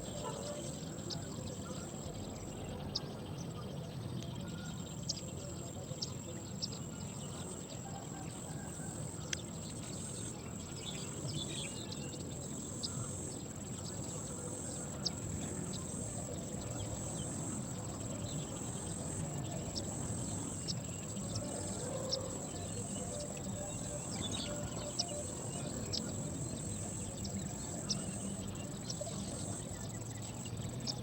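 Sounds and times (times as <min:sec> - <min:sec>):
high-pitched insect trill: 0:06.4 - 0:31.0.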